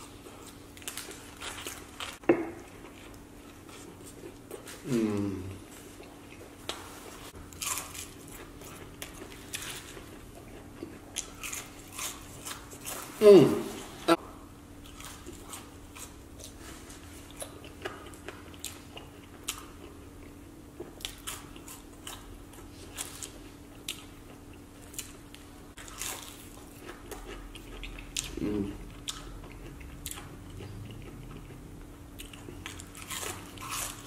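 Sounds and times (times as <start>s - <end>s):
person chewing crunchy fries: 0.0s - 13.2s, 14.8s - 34.0s.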